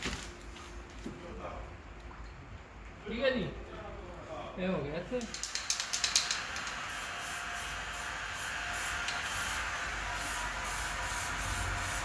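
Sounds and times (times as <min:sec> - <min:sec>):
spray gun hissing: 0:06.1 - 0:12.0.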